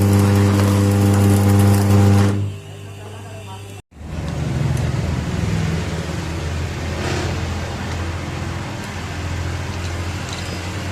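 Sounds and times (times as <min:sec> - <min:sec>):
machine motor humming: 0:00.0 - 0:03.0.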